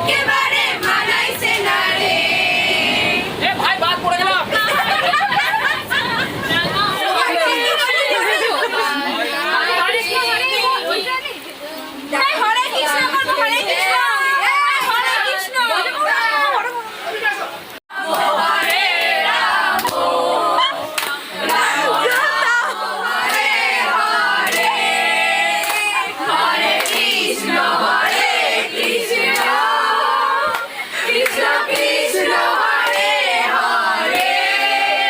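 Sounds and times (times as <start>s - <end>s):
group of people singing: 0.0s - 3.6s, 4.4s - 10.8s, 17.9s - 35.0s
hand claps: 19.8s - 20.0s, 21.0s - 22.3s, 25.6s - 25.9s, 26.8s - 27.2s.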